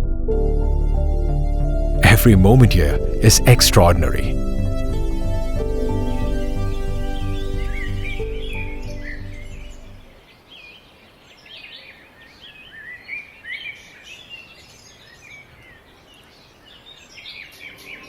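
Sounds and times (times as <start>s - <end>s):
music track: 2.0s - 4.4s.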